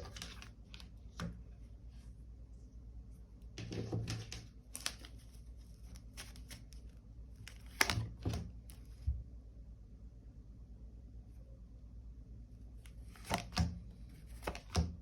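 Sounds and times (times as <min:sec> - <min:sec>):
cards slapping on a table: 0:13.1 - 0:13.7.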